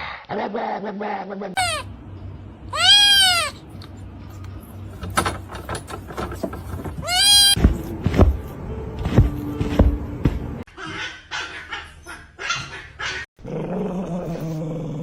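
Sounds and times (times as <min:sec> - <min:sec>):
dog barking: 0:10.8 - 0:13.3
dog growling low: 0:13.4 - 0:15.0.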